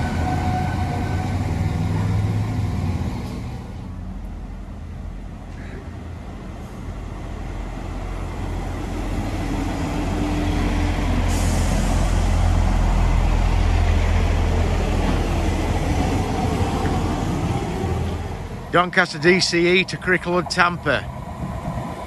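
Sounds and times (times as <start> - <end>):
train engine drone: 0.0 - 22.0
rush of wheel and air noise: 5.4 - 18.8, 21.0 - 22.0.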